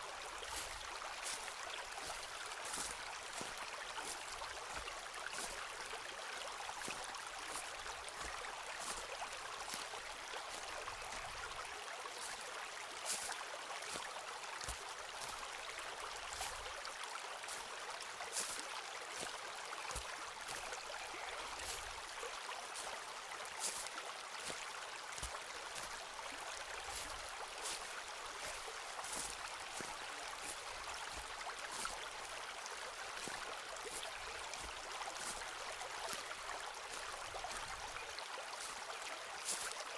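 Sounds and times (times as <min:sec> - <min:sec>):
stream flowing: 0:00.0 - 0:39.9
footsteps crunching on path: 0:00.4 - 0:05.6, 0:06.8 - 0:11.6, 0:13.1 - 0:15.4, 0:18.3 - 0:18.6, 0:19.2 - 0:22.1, 0:23.6 - 0:24.6, 0:25.2 - 0:32.0, 0:33.2 - 0:38.8, 0:39.4 - 0:39.8.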